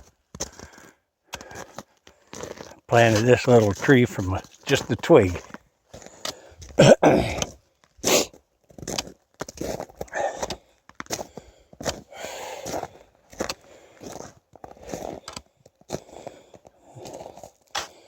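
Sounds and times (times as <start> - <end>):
footsteps crunching in woods: 1.4 - 6.4, 10.9 - 18.0.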